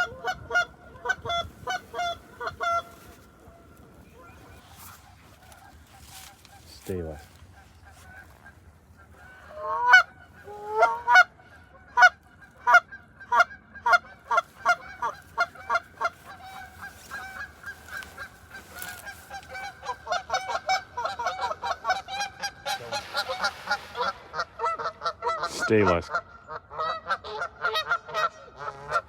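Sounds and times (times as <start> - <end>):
geese honking: 0.0 - 29.0.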